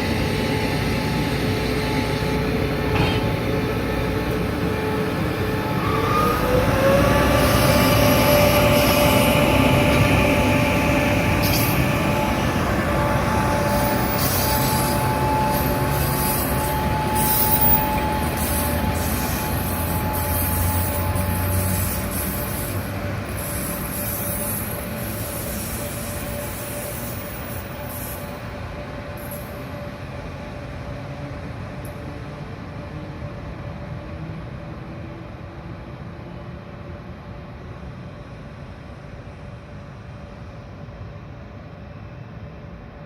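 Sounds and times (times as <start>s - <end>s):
train rolling on rails: 0.0s - 43.0s
high wheel squeal: 7.4s - 28.5s.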